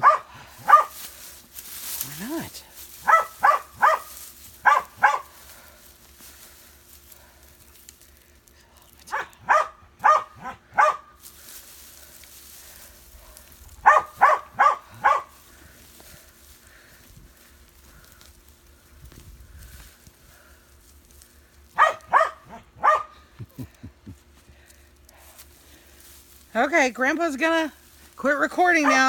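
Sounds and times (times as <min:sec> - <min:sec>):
dog barking: 0:00.0 - 0:00.9, 0:03.0 - 0:05.3, 0:09.1 - 0:11.1, 0:13.8 - 0:15.3, 0:21.8 - 0:23.2.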